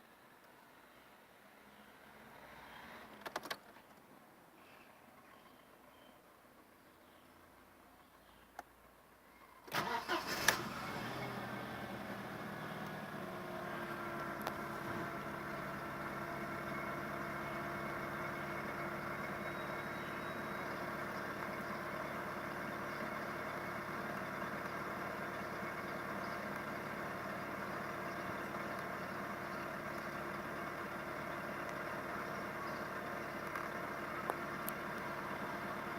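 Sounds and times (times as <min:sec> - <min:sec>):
car engine idling: 0:09.8 - 0:35.9.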